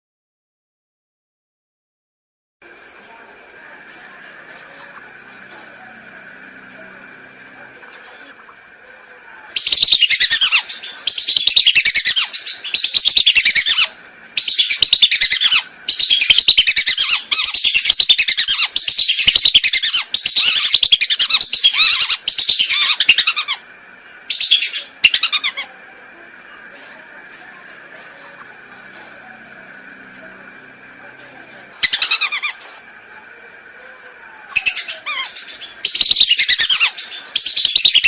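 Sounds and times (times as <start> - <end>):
ducks whistling: 9.6 - 23.6, 31.8 - 32.8, 34.6 - 38.0.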